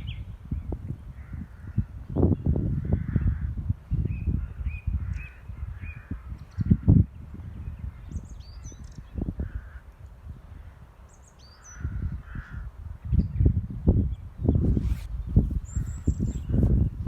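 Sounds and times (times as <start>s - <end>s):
wind rumble on microphone: 0.0s - 17.0s
short high bird chirps: 14.6s - 16.7s.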